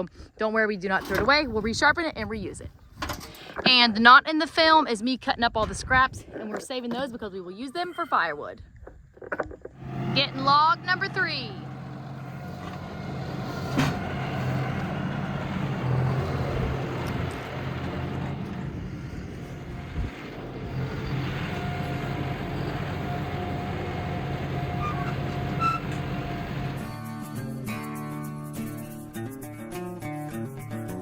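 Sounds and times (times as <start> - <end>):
tractor engine running: 9.7 - 27.0.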